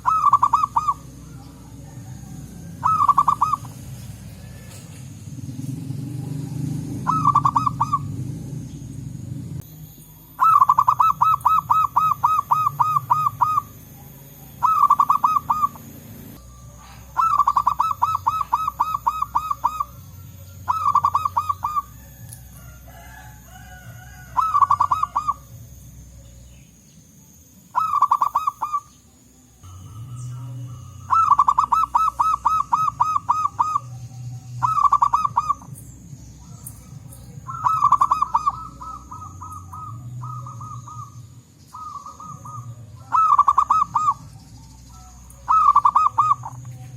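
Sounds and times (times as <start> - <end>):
doves cooing: 0.0 - 46.9.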